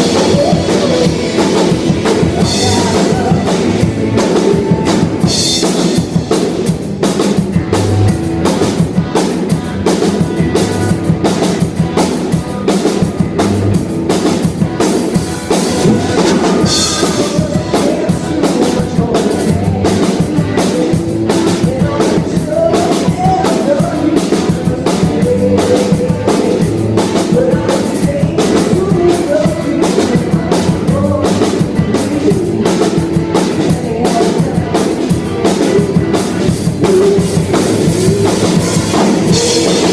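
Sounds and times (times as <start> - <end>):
person singing: 0.0 - 6.4, 15.4 - 39.9
bass guitar: 0.0 - 39.9
drum kit: 0.0 - 39.9
electric guitar: 0.0 - 39.9.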